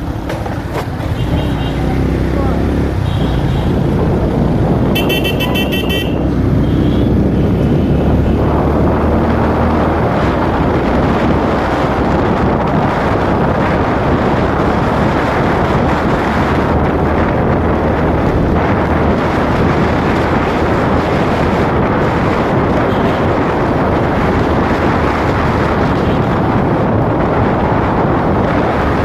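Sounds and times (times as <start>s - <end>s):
motorcycle running: 0.0s - 29.0s
wind and road noise: 0.0s - 29.0s
vehicle horn beeping: 4.9s - 7.2s.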